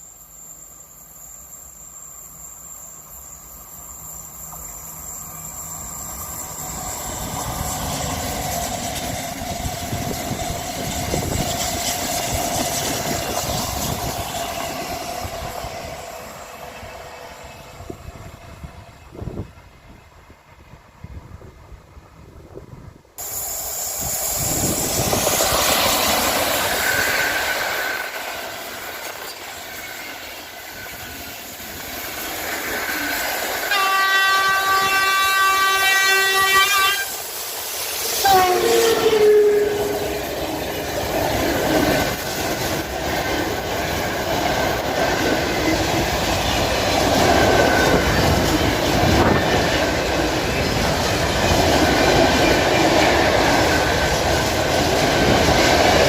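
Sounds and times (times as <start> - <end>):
train wheel and rail noise: 0.0 - 56.0
locomotive horn blast: 33.7 - 37.2, 38.2 - 40.2.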